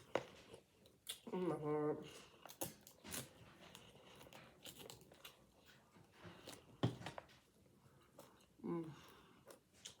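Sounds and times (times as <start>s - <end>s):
chewing and crunching salad: 0.0s - 6.8s, 7.4s - 10.0s.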